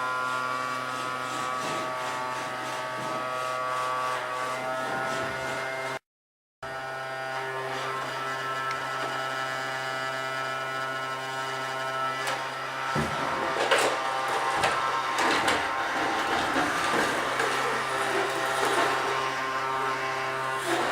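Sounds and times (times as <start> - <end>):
vacuum cleaner motor humming: 6.7 - 20.9.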